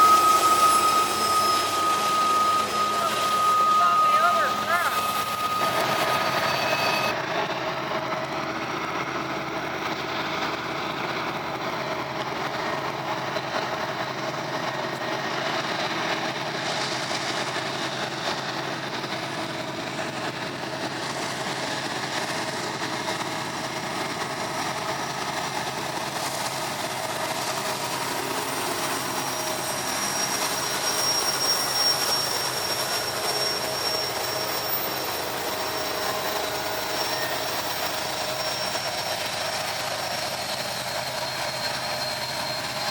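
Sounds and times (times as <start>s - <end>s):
faint high whine: 0.0s - 7.1s
diesel locomotive engine drone: 0.0s - 42.9s.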